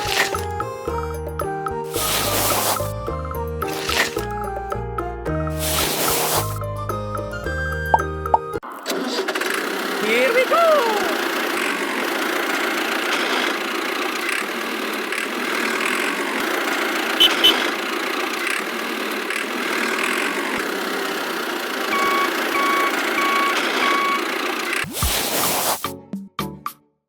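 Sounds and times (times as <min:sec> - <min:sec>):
small motor running: 0:00.0 - 0:00.5, 0:01.9 - 0:02.9, 0:03.7 - 0:04.3, 0:05.6 - 0:06.6, 0:09.2 - 0:25.8
reversing alarm beeps: 0:21.9 - 0:24.3.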